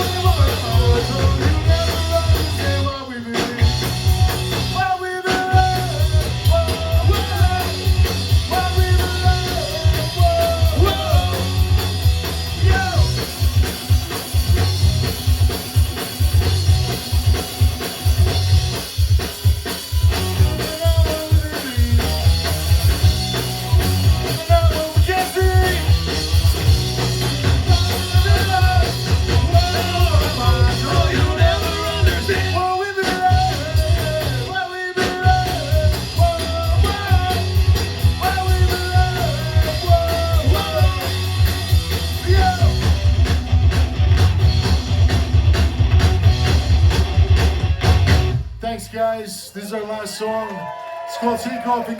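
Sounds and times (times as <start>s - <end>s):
person singing: 0.0s - 3.7s, 27.6s - 37.6s, 38.2s - 41.3s
rock band playing live: 0.0s - 48.6s.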